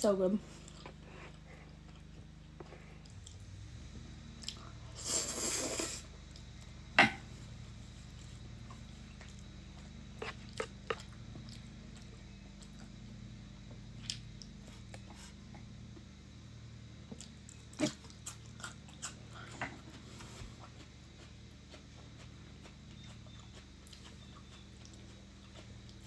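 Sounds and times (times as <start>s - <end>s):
mouth chewing sounds: 17.1s - 26.0s.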